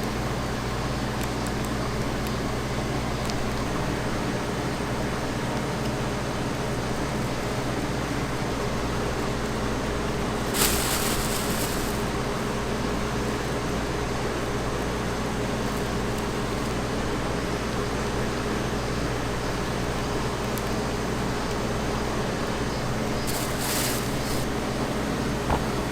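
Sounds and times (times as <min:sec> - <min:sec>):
short high hiss: 0:10.4 - 0:12.2.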